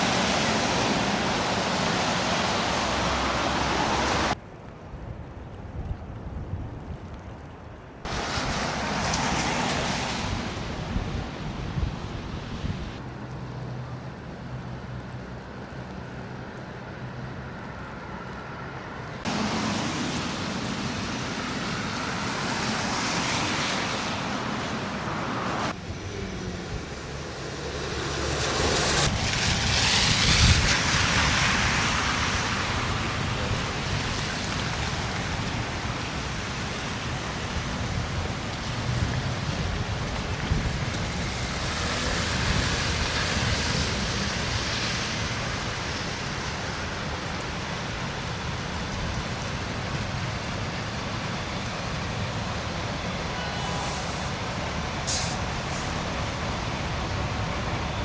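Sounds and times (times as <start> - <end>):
vehicles passing on snowy road: 0.0 - 4.7, 8.0 - 58.0
wind buffeting microphone: 1.0 - 13.0, 25.7 - 53.3.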